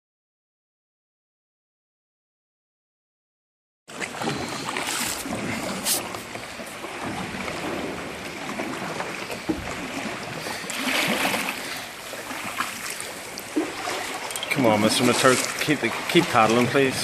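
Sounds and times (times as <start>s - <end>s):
kayak paddle strokes: 3.9s - 17.0s
water splashing around boat: 3.9s - 17.0s.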